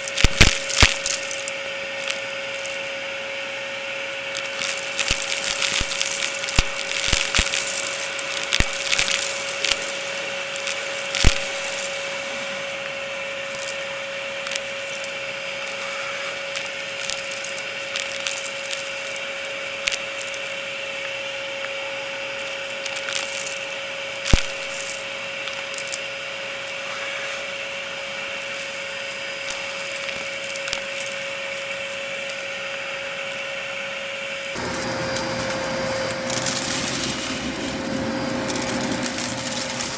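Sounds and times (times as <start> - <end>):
sharp cracks: 0.0 - 3.0, 4.3 - 21.8, 22.4 - 26.0, 28.2 - 32.4
debris crackling in vacuum: 0.0 - 39.9
vacuum cleaner whine: 0.0 - 39.9.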